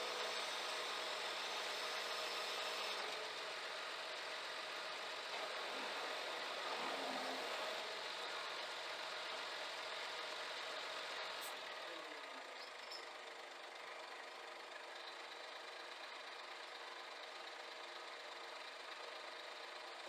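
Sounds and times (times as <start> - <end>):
truck diesel engine idling: 3.2 - 20.0.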